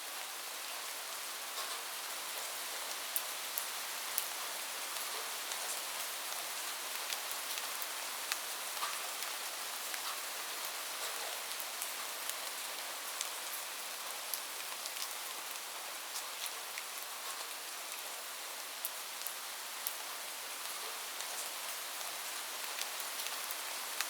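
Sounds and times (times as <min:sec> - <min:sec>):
rain on a roof: 0:00.0 - 0:24.0.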